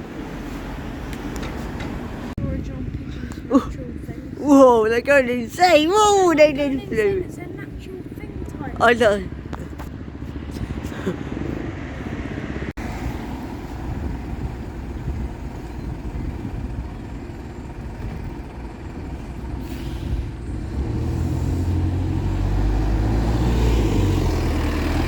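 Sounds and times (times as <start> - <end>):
diesel bus engine running: 0.0 - 25.0
street traffic: 0.0 - 25.0.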